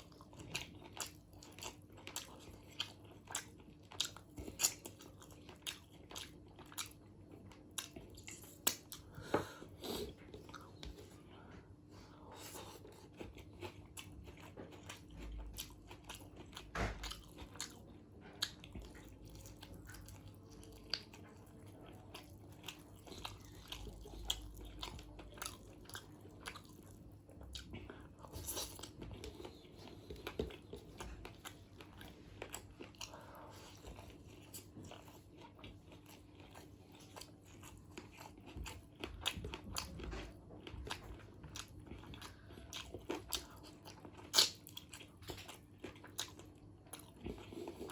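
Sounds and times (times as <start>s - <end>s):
person chewing food: 0.0s - 47.9s.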